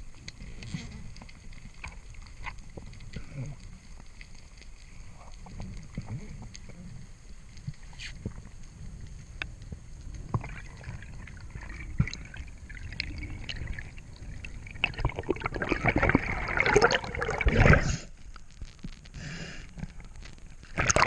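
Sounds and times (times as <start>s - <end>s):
water splashing and gurgling: 9.6s - 18.2s, 19.9s - 21.0s.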